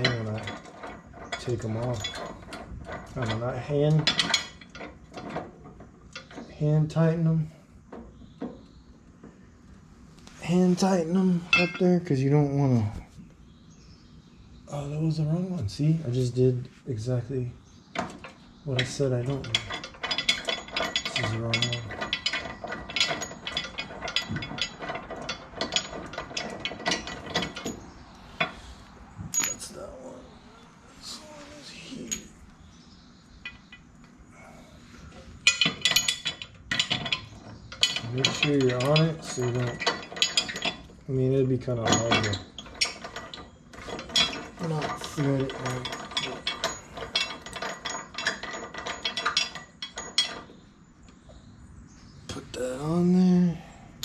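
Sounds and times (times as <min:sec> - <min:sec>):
light metal clinks: 0:29.3 - 0:29.8, 0:41.7 - 0:50.6.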